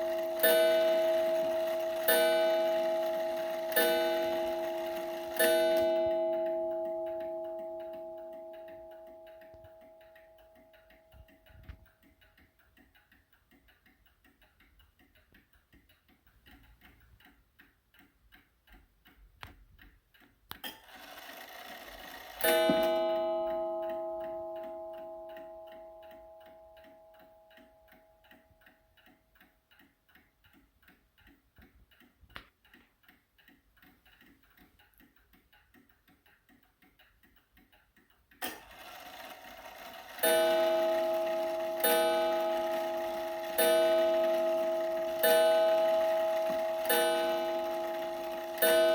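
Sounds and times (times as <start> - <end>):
clock strike train whirring: 0.0 - 9.4, 20.8 - 25.5, 38.5 - 48.9
clock strike ringing: 0.0 - 11.4, 20.8 - 28.4, 38.4 - 48.9
mantel clock ticking: 0.0 - 48.9.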